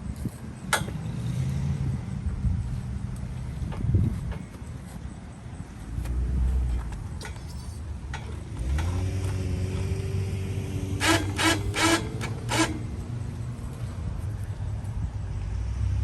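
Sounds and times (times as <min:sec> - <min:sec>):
winch motor hum: 0:10.7 - 0:13.4
loud rasping bursts: 0:11.0 - 0:13.3.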